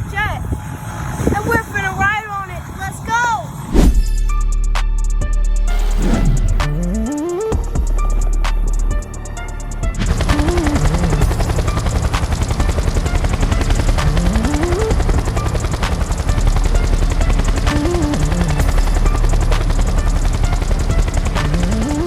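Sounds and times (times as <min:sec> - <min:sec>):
background music: 0:00.0 - 0:22.0
helicopter rotor blades chopping: 0:05.7 - 0:22.0.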